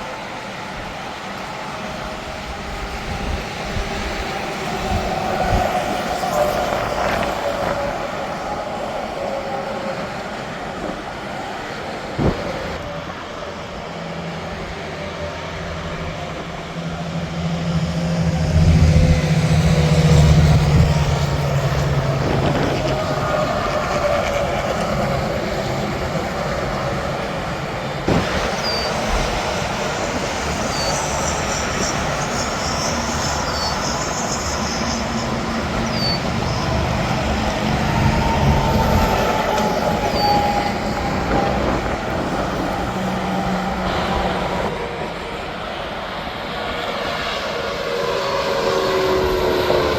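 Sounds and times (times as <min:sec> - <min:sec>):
highway traffic: 0:00.0 - 0:49.9
passing truck engine drone: 0:02.1 - 0:49.9.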